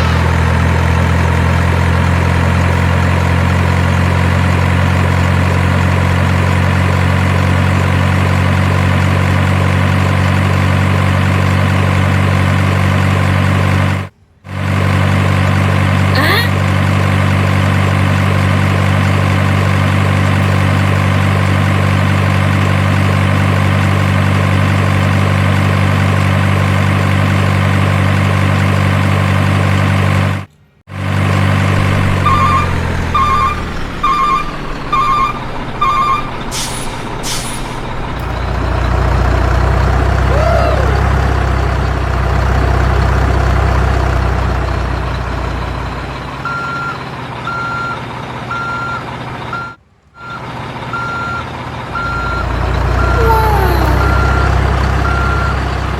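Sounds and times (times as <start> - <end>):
diesel truck engine idling: 0.0 - 55.9
reversing alarm beeping: 32.2 - 36.5, 46.4 - 55.7
air brakes hissing: 36.5 - 38.0.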